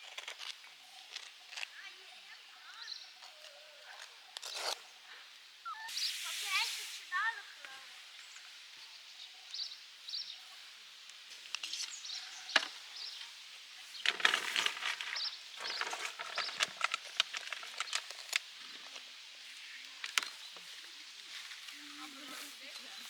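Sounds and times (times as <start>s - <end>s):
high chirps: 5.6s - 7.3s.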